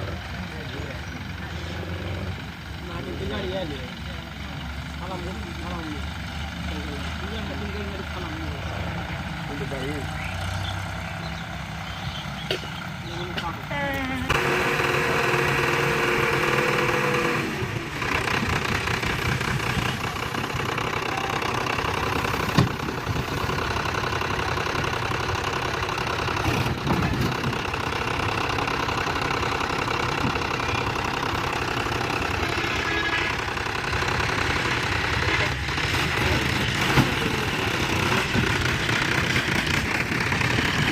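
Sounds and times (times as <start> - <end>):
tractor diesel engine knocking: 0.0 - 40.9.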